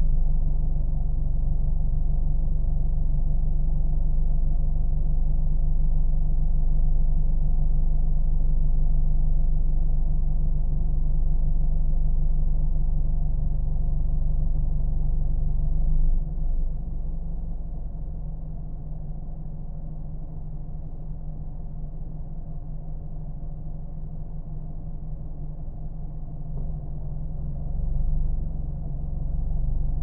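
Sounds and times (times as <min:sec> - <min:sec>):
car engine rumbling: 0:26.5 - 0:30.0.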